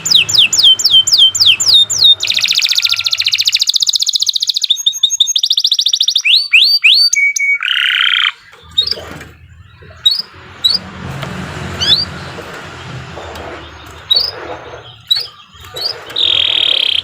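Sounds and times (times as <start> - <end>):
low background rumble: 0.0 - 3.4, 8.6 - 16.6
canary singing: 0.0 - 17.0.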